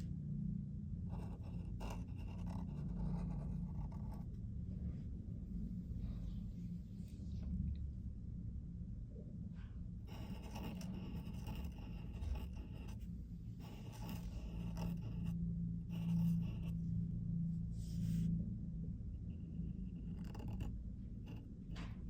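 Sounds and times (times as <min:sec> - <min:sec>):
steady low hum: 0:00.0 - 0:22.0
pen scratching on paper: 0:01.1 - 0:04.3, 0:10.1 - 0:16.8, 0:19.6 - 0:21.5.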